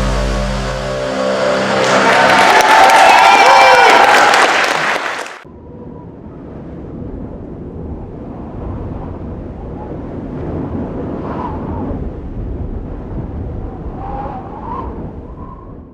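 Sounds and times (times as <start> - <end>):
audience rumble in a hall: 0.0 - 5.4.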